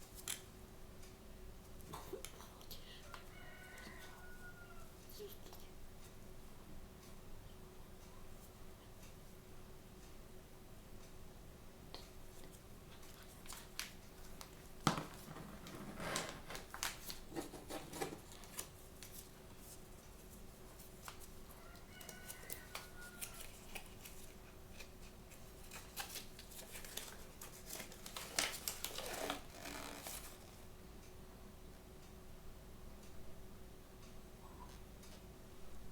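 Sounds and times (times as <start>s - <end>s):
plastic wrapping crinkling: 13.4s - 19.2s, 25.6s - 30.6s.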